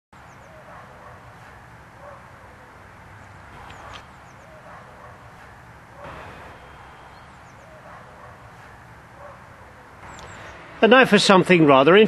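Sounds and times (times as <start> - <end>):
birds chirping and calling: 0.2 - 10.8
steady low rumble: 3.5 - 11.3.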